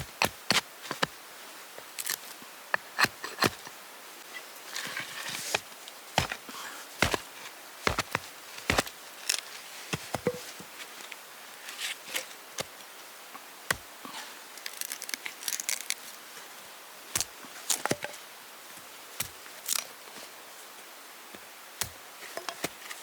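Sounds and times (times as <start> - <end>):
rustling and crinkling: 4.3 - 12.7, 14.2 - 16.2.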